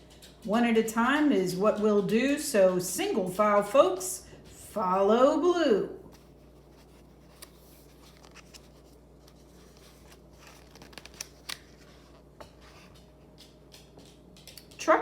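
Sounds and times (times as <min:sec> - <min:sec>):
low room hum: 0:00.0 - 0:15.0
paper page rustling: 0:06.1 - 0:13.0.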